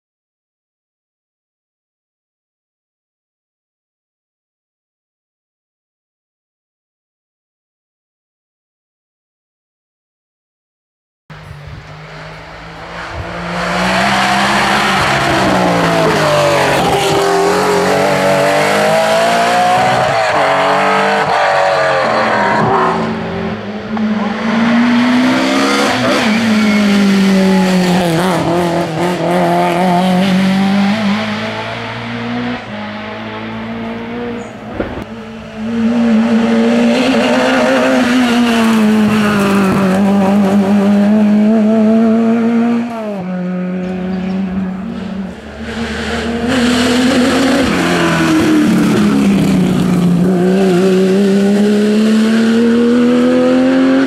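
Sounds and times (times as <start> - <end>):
rally car engines revving: 11.3 - 54.0.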